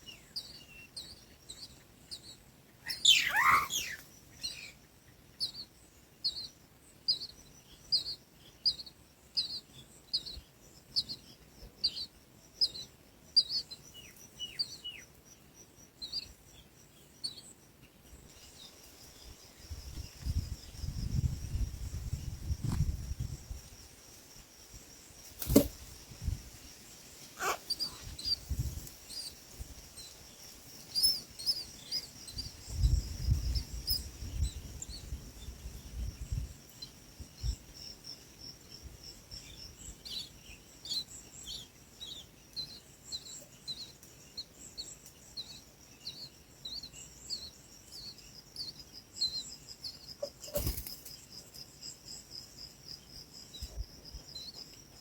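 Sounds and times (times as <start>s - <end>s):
insect drone: 0.0s - 55.0s
small birds chirping: 0.0s - 55.0s.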